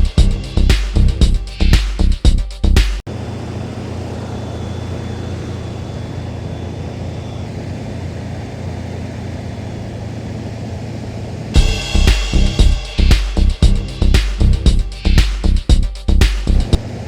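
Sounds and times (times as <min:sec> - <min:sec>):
car engine idling: 0:03.1 - 0:17.0
faint high whistle: 0:04.2 - 0:07.7.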